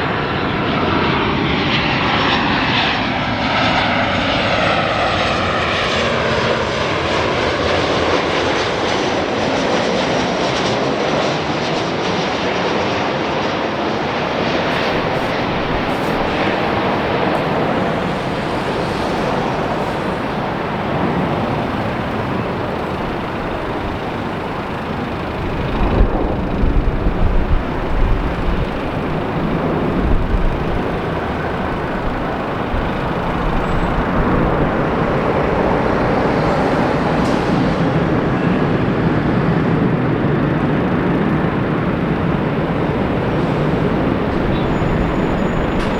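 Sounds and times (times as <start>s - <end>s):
loud engine roar: 0.0s - 45.9s
wind buffeting microphone: 11.8s - 45.9s.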